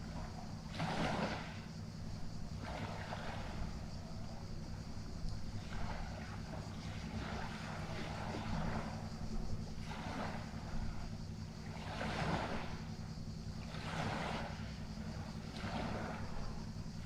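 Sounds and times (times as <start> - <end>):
water washing in swells: 0.0 - 1.7, 2.6 - 3.8, 5.5 - 9.1, 9.8 - 12.9, 13.6 - 16.6
low motor hum: 0.0 - 17.0.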